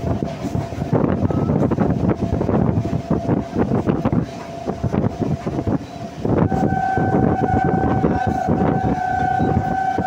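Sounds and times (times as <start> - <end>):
train horn blast: 6.3 - 10.0.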